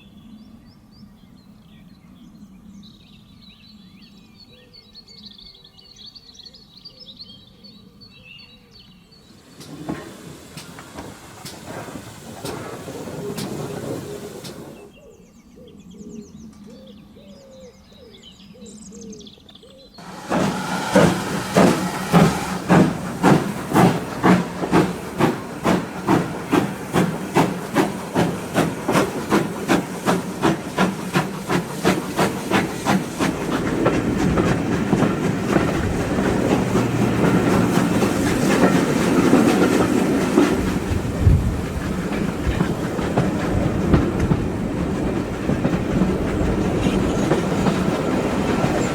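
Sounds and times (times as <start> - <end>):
rail noise: 9.1 - 15.1, 20.0 - 48.9
steam locomotive chuffing: 9.2 - 15.0, 20.0 - 48.9.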